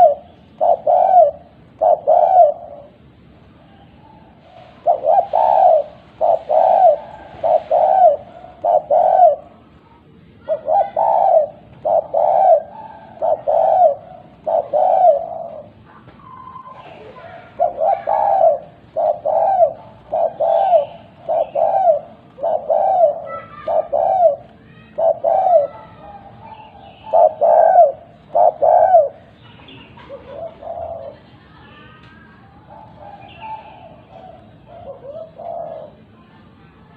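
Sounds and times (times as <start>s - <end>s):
dove cooing: 0.0s - 9.7s, 10.4s - 31.4s, 32.6s - 36.3s
faint high bird chirps: 15.9s - 18.3s.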